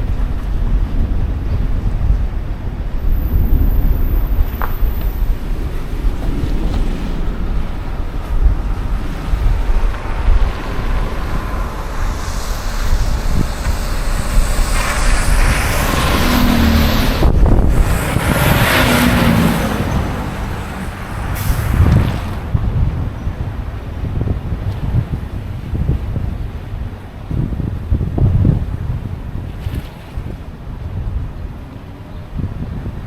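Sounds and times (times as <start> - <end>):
city street traffic: 0.0 - 33.0
wind rumble on microphone: 0.0 - 33.0
heavy vehicle passing: 2.8 - 23.8.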